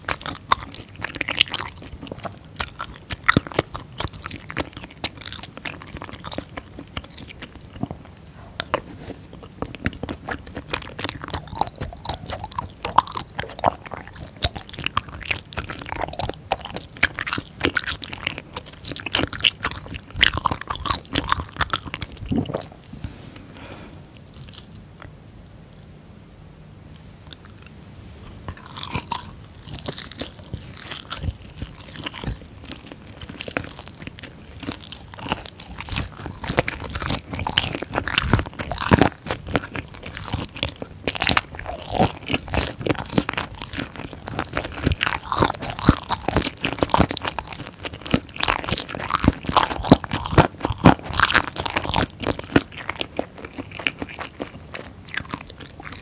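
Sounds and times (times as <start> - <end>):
crunchy chewing: 0.0 - 25.9, 26.9 - 56.0.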